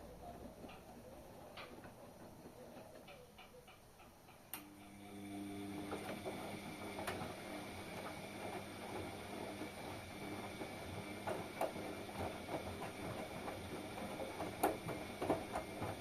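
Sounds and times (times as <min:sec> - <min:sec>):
washing machine humming: 0:00.0 - 0:16.0
washing machine clicks: 0:10.2 - 0:16.0.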